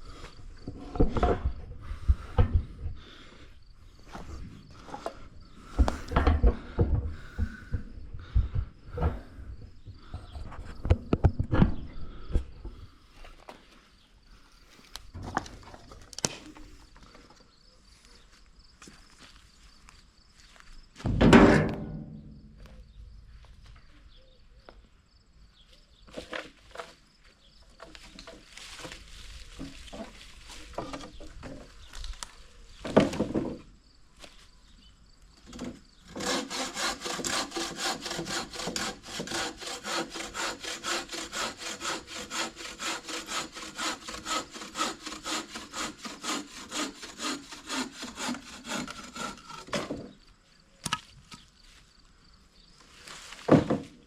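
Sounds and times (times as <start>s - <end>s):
hand saw cutting wood: 35.5s - 50.1s.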